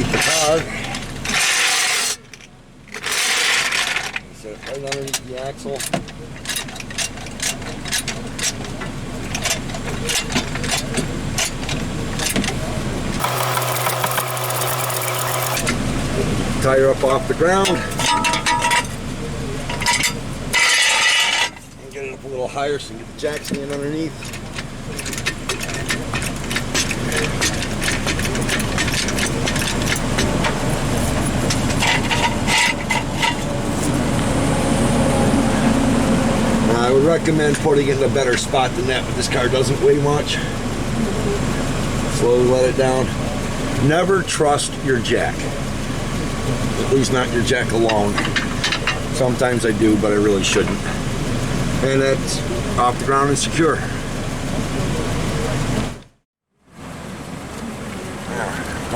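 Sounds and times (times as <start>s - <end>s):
steady hum: 13.2s - 16.4s, 27.0s - 39.4s
car jack clicking: 24.3s - 33.9s.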